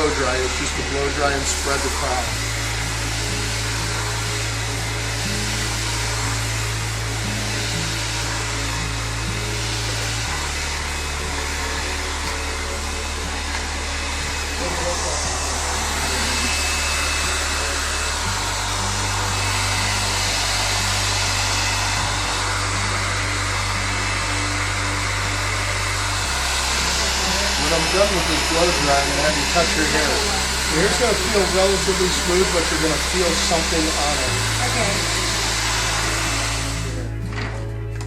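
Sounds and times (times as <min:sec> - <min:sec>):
hair dryer blowing: 0:00.0 - 0:37.5
background music: 0:00.0 - 0:38.0.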